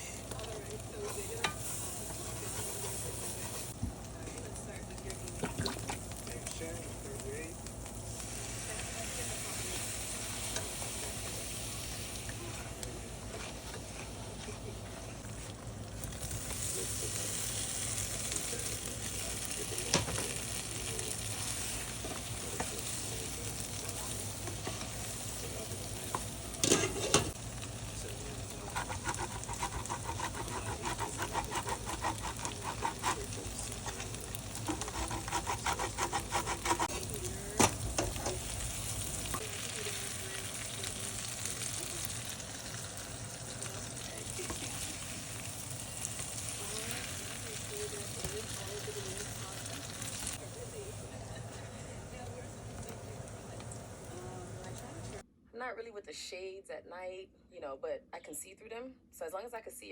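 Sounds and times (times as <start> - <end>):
food sizzling in a pan: 0.0 - 3.8, 4.5 - 55.2
spatula stirring and knocking pan: 28.7 - 38.5.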